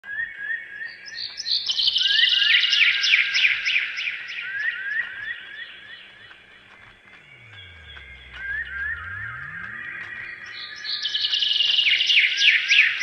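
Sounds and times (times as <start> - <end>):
bird chirping: 0.1 - 13.0
high bird trill: 5.6 - 13.0.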